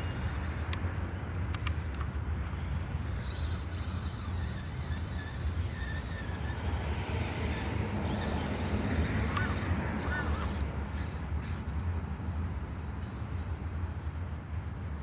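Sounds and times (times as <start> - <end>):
toy truck motor revs: 0.0 - 0.9, 2.5 - 15.0
electric motor whining: 0.0 - 1.0, 2.5 - 11.8.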